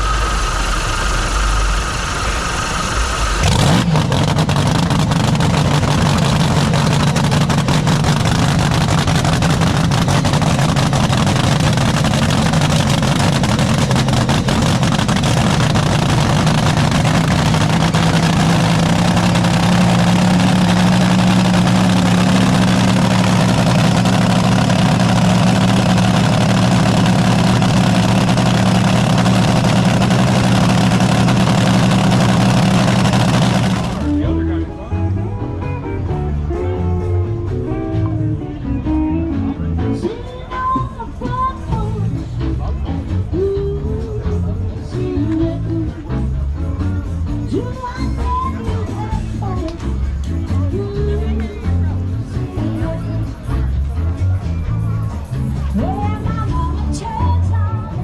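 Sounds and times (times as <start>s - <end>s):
supercharger whine: 0.0s - 34.5s
dragster engine deep idle: 0.0s - 34.7s.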